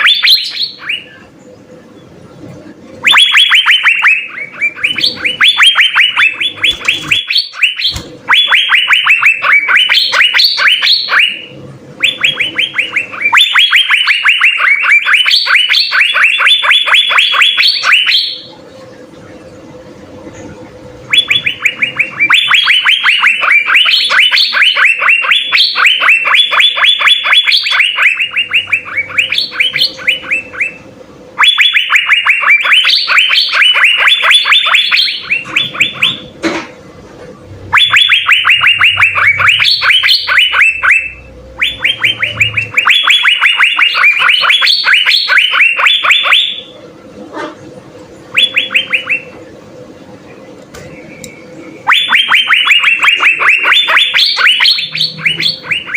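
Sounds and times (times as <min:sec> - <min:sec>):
bird singing sharp high notes: 0:37.6 - 0:46.7, 0:50.9 - 0:55.9.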